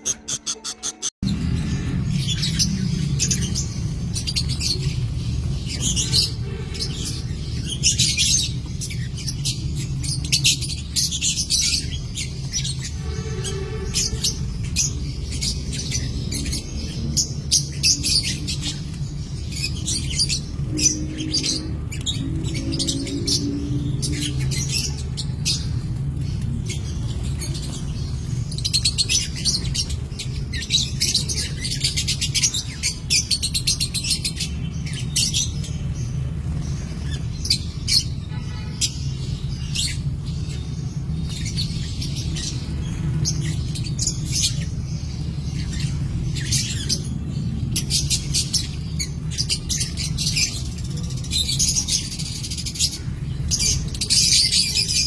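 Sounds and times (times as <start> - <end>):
bird squawks: 0.0 - 1.8
small birds chirping: 0.0 - 55.0.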